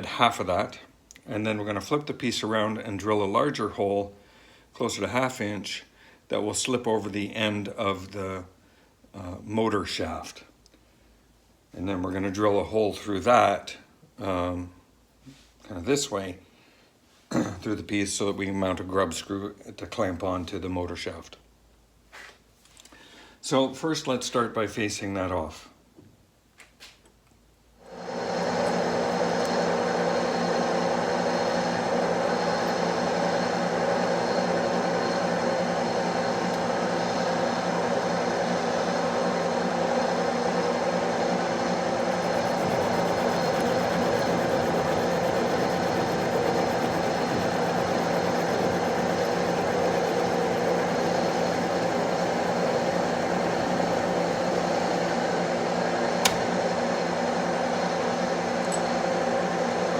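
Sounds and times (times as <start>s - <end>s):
metal lathe humming and whining: 41.8s - 55.2s.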